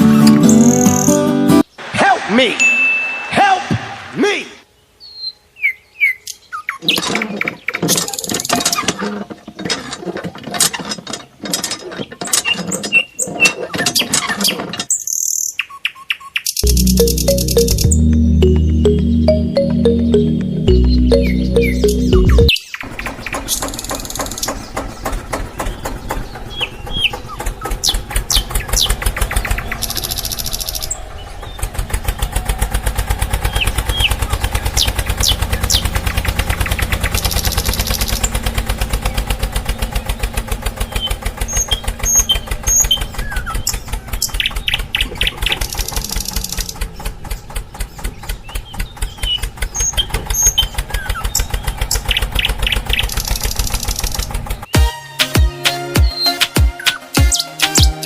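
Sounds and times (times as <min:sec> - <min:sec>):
birds chirping: 0:12.0 - 0:32.4, 0:33.4 - 0:54.8
small engine chugging: 0:20.7 - 0:54.7.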